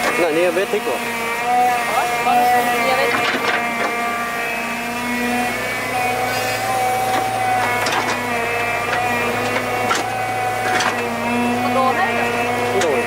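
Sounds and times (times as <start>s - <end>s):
machine motor running: 0.0s - 13.0s.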